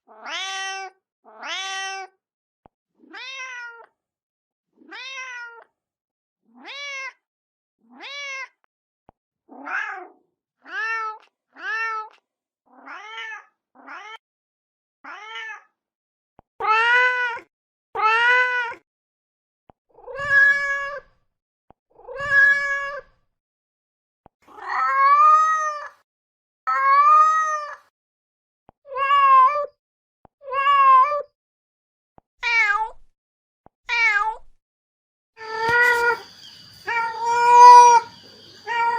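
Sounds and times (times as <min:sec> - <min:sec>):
cat meowing: 0:00.1 - 0:02.1, 0:03.0 - 0:03.9, 0:04.8 - 0:05.7, 0:06.6 - 0:07.2, 0:07.9 - 0:08.5, 0:09.5 - 0:12.1, 0:12.8 - 0:14.2, 0:15.1 - 0:15.7, 0:20.0 - 0:21.0, 0:22.1 - 0:23.1, 0:26.7 - 0:27.9, 0:28.9 - 0:29.7, 0:30.4 - 0:31.3, 0:32.4 - 0:33.0, 0:33.9 - 0:34.5, 0:35.4 - 0:38.9.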